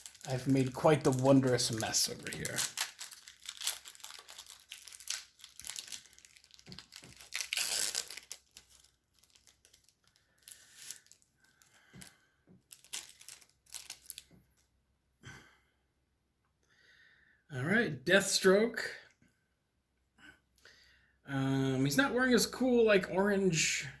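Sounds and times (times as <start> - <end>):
card pack wrapper crinkling and tearing: 0.0 - 14.3
rustling of wrappers and cards: 0.0 - 14.7.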